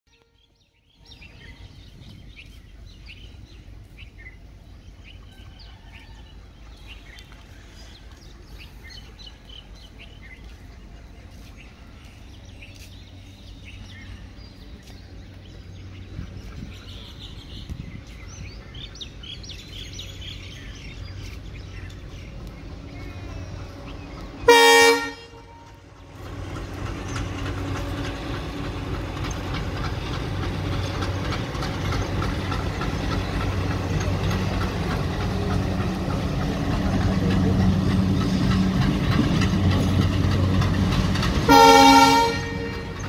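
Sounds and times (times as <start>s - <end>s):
birds chirping: 0.1s - 43.0s
steady low rumble: 6.4s - 24.5s.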